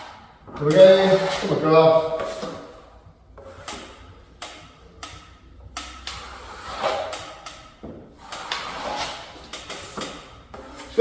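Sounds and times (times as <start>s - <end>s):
trowel scraping filler: 0.0s - 2.8s, 6.1s - 7.4s, 8.2s - 11.0s.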